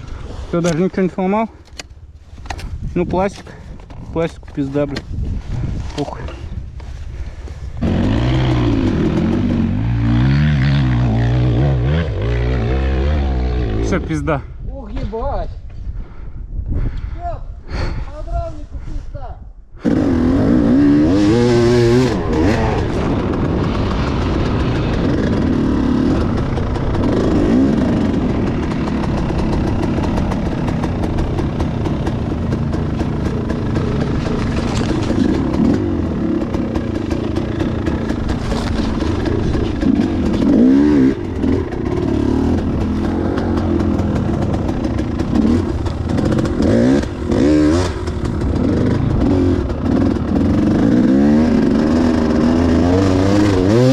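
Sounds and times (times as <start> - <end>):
motorcycle engine revving: 7.8 - 14.2, 19.8 - 53.9.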